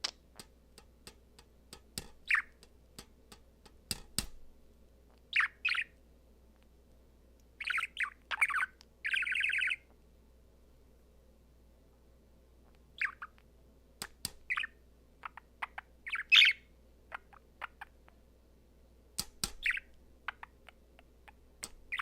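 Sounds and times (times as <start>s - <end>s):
budgerigar chirping and warbling: 2.3s - 2.6s, 5.3s - 5.9s, 7.6s - 9.8s, 13.0s - 13.4s, 14.5s - 17.9s, 19.6s - 22.0s.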